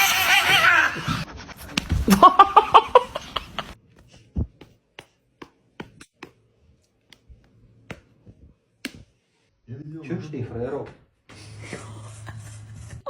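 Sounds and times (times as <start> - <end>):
person laughing: 2.0 - 3.8.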